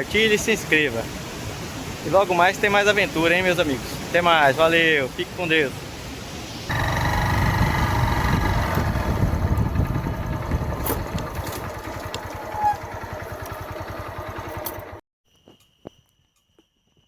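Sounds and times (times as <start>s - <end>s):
motorcycle engine running: 6.7s - 15.0s.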